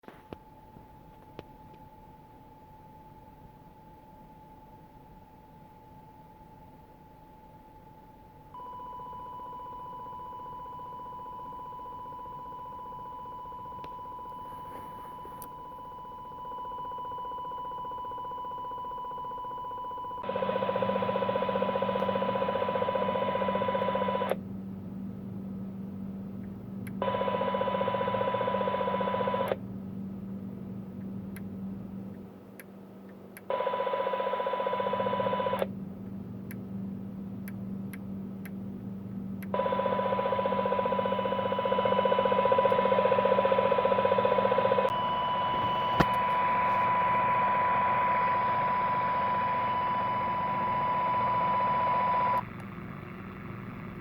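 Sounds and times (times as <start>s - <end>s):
radio interference buzzing: 39.6s - 53.8s.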